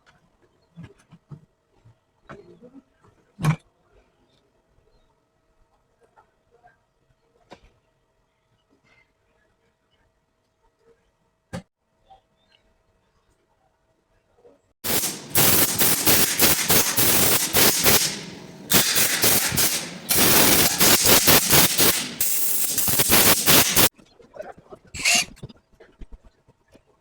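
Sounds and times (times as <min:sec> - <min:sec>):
compressed air blast with crackling: 0:14.8 - 0:23.9, 0:25.0 - 0:25.3.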